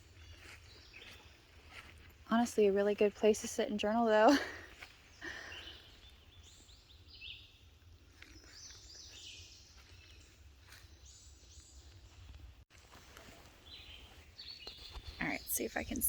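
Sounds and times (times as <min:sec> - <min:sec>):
faint birdsong chirping: 0:00.0 - 0:16.0.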